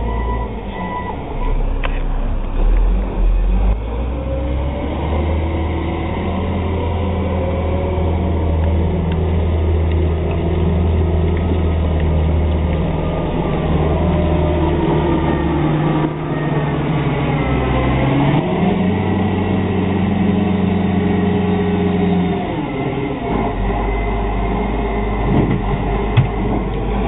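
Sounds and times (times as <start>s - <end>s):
truck engine droning: 0.0s - 27.0s.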